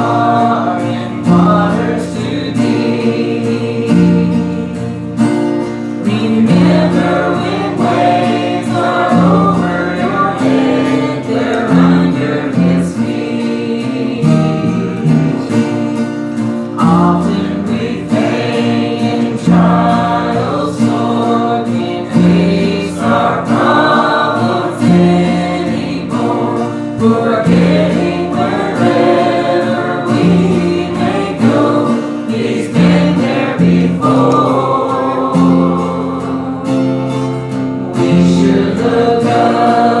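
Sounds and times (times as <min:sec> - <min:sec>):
congregation singing a hymn: 0:00.0 - 0:40.0
guitar accompaniment: 0:00.0 - 0:40.0.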